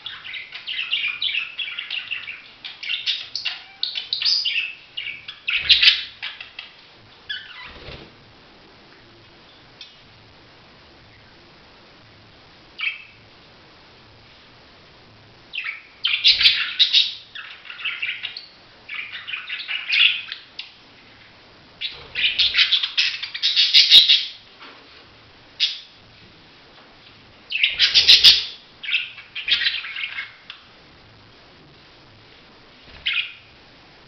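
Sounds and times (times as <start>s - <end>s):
budgerigar chattering and warbling: 27.6s - 28.6s.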